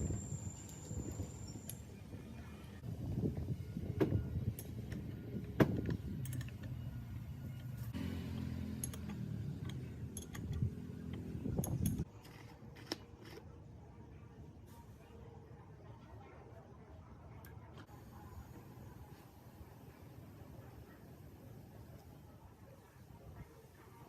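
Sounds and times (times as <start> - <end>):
metal clinks and knocks: 8.7 - 12.1.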